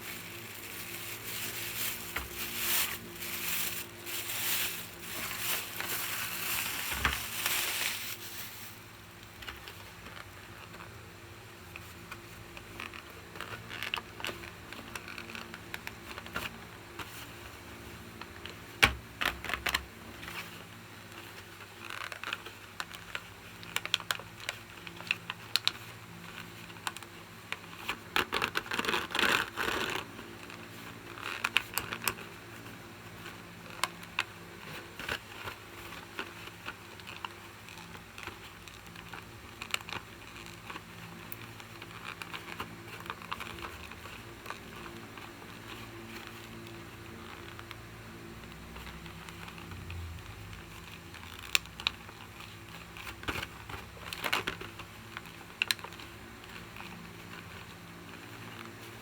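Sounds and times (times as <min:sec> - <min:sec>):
packaging scratching and rustling: 0:00.0 - 0:10.9, 0:11.7 - 0:17.4, 0:19.2 - 0:59.0.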